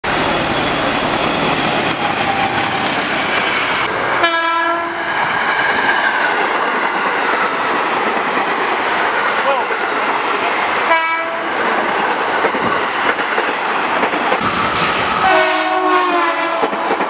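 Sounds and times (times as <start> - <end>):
train rushing past: 0.0 - 17.0
train horn blast: 4.2 - 5.0, 10.9 - 11.5, 15.2 - 16.9.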